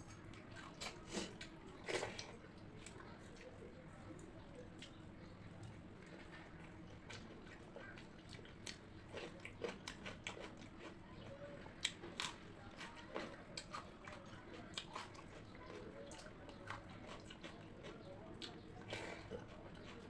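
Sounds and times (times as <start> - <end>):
person chewing crunchy food: 6.9 - 11.0, 11.8 - 20.0.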